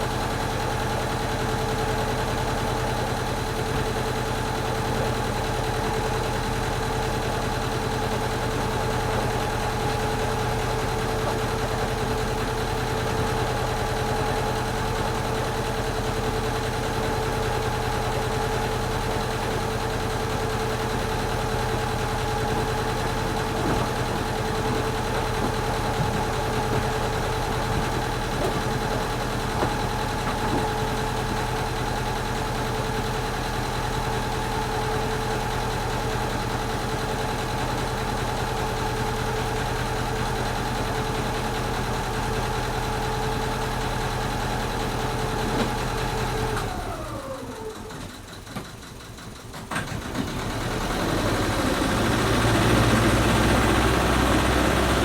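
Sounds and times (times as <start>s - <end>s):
vehicle engine idling with whine: 0.0s - 55.0s
engine winding down: 49.6s - 55.0s.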